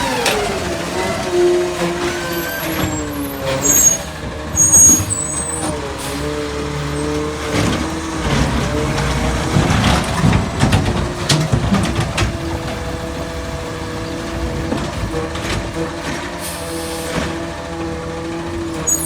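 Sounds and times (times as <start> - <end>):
garbage truck running: 0.0 - 19.0
short high squeals: 2.4 - 5.6.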